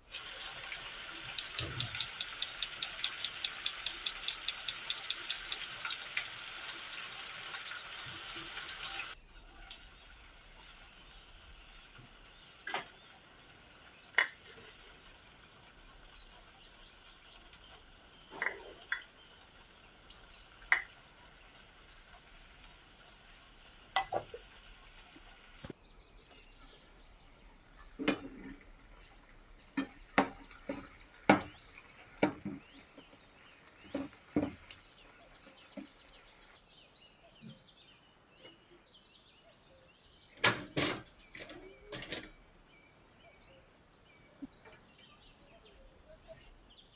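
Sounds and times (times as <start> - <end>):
dishes and utensils clinking: 1.4 - 5.6.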